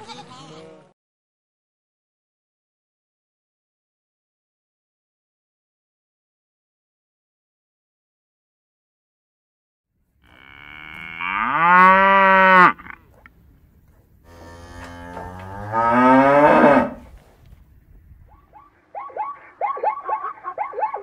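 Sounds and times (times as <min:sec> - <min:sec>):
cow mooing: 0:10.2 - 0:13.0, 0:14.2 - 0:17.1.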